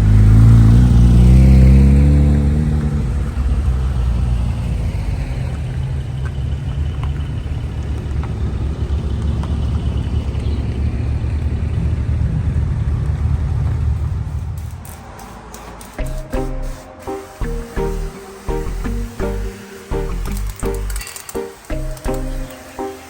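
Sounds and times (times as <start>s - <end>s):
car engine and road rumble: 0.0s - 16.3s.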